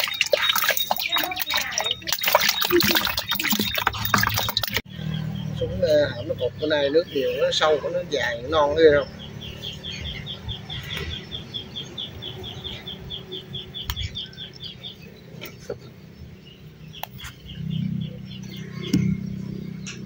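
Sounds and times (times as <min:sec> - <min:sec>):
bird chirping rapidly: 0:00.0 - 0:15.2.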